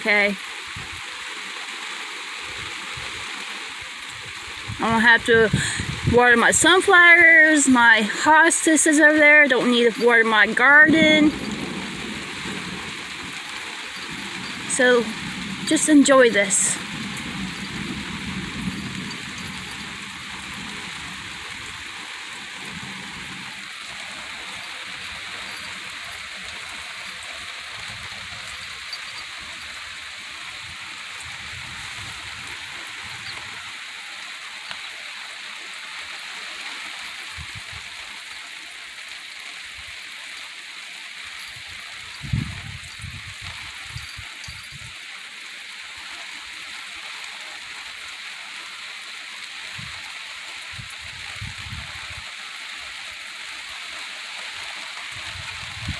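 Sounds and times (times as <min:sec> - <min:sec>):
heavy rain: 0:00.0 - 0:55.9
low rumbles: 0:10.9 - 0:13.4.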